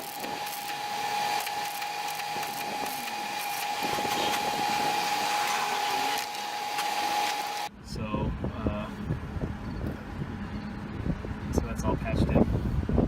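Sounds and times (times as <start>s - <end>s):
welder crackle and hiss: 0.0s - 7.7s
welder whine: 0.0s - 7.7s.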